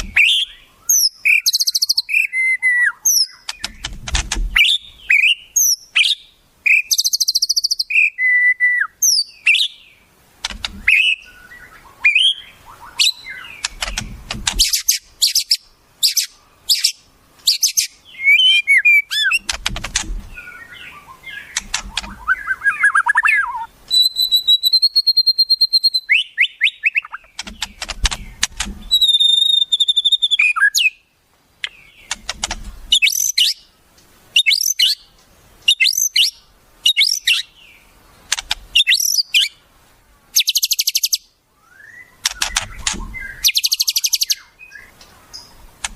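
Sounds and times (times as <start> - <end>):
songbird song: 0.0 - 45.9
low thumps: 3.6 - 4.6, 13.7 - 14.7, 19.4 - 20.4, 27.4 - 29.0.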